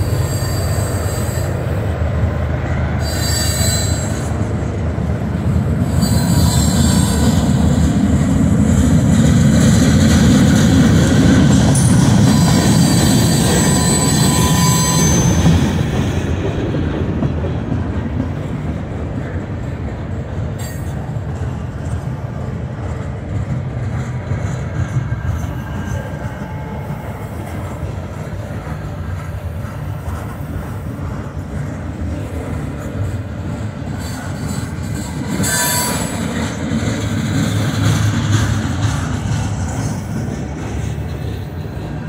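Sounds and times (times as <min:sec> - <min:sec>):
high-pitched wheel squeal: 0:00.0 - 0:01.6, 0:03.0 - 0:04.4, 0:05.9 - 0:07.4, 0:11.7 - 0:15.8, 0:34.0 - 0:36.4
steel train wheels rumbling: 0:00.0 - 0:42.0.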